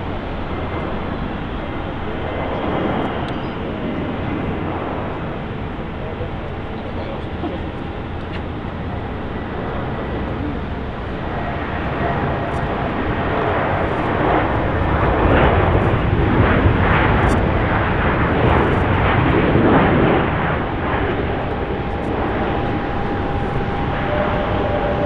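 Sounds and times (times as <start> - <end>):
jet airliner passing: 0.0 - 25.0.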